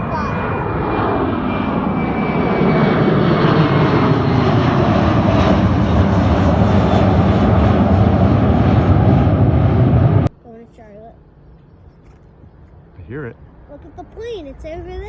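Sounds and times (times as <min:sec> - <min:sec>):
jet engines of passing plane: 0:00.0 - 0:10.3.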